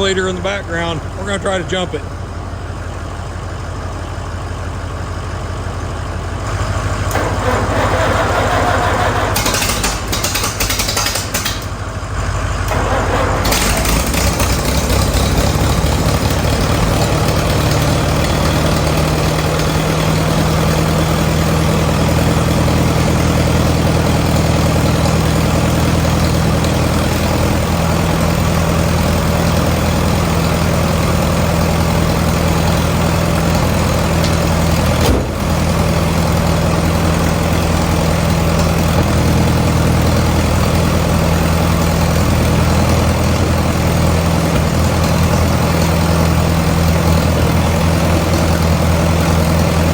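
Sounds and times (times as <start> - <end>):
diesel truck idling: 0.0 - 49.9.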